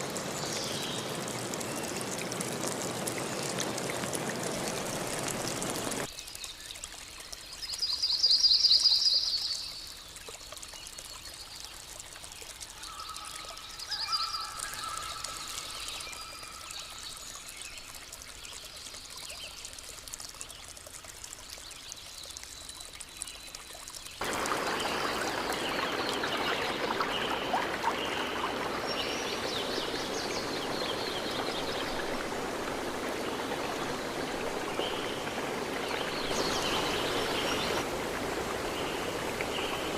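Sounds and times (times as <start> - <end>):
stream rushing: 0.0 - 6.1, 24.2 - 39.9.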